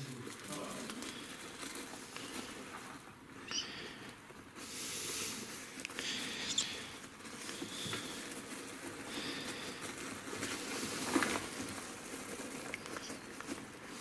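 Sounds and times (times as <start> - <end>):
rummaging through a bag: 5.4 - 14.0.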